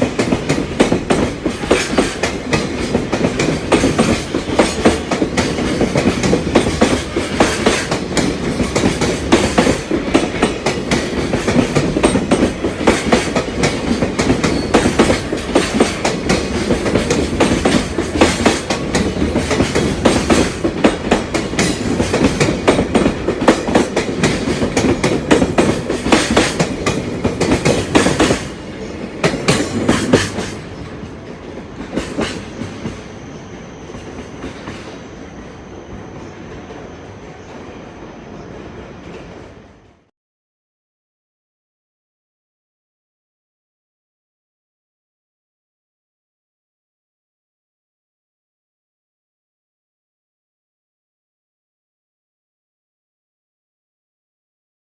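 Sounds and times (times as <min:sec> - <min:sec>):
train wheels clattering on rails: 0:00.0 - 0:37.8
train rumble: 0:00.0 - 0:40.1.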